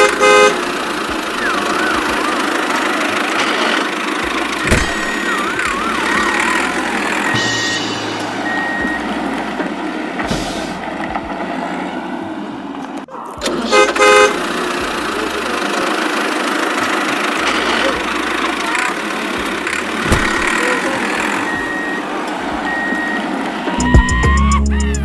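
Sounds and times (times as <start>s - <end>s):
car horn toots: 0.0s - 10.2s, 13.4s - 15.8s
vehicle engine: 0.0s - 25.0s
short high beeps: 4.6s - 9.1s.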